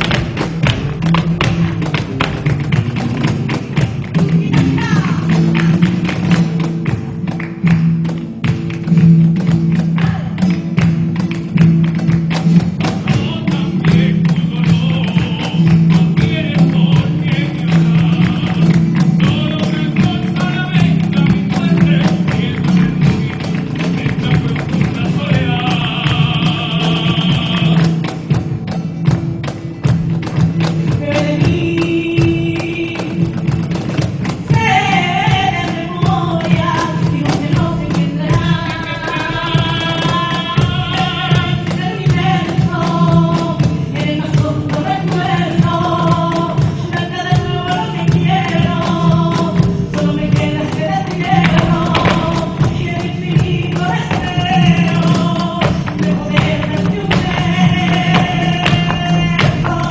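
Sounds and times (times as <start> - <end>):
fast dense percussion: 0.0 - 59.9
voices singing a melody: 34.5 - 59.9.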